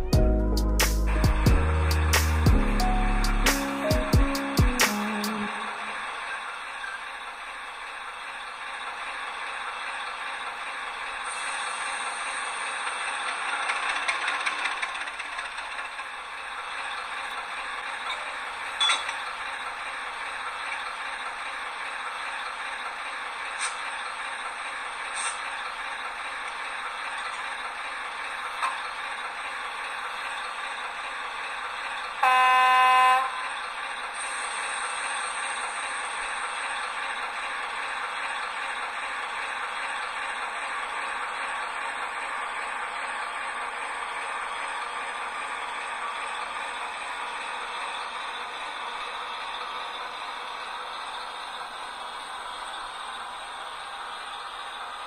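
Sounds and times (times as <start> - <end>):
train horn: 4.1 - 6.3, 32.2 - 33.6
model train rattling along track: 4.4 - 55.0.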